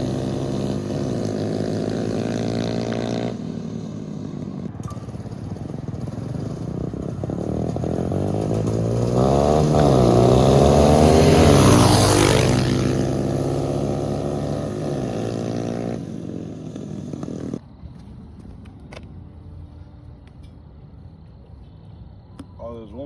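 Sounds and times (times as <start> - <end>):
small motorbike engine revving: 0.0 - 17.6.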